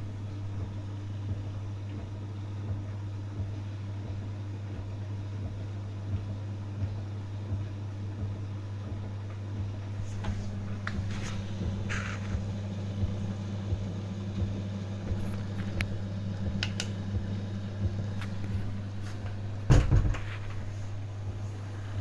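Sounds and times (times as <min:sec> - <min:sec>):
washing machine motor hum: 0:00.0 - 0:22.0
washing machine thump: 0:16.5 - 0:21.4.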